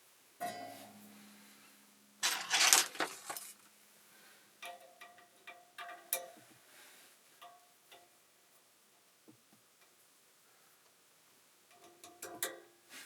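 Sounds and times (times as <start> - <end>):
packaging rustling scrape: 2.2 - 3.6.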